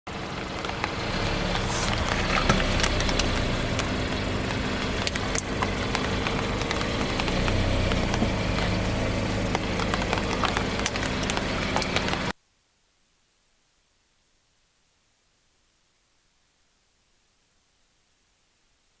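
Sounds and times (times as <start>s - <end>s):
car engine running slowly: 0.1s - 12.3s
objects crunching under tyres: 0.1s - 12.3s.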